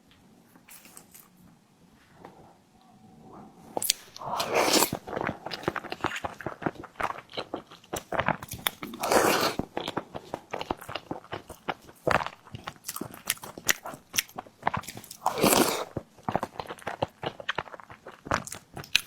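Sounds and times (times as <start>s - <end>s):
person biting and chewing: 3.8s - 19.0s.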